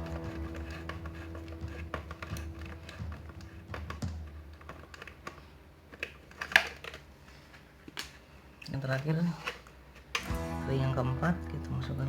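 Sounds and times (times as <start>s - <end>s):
small parts clicking and tapping: 0.0s - 7.1s.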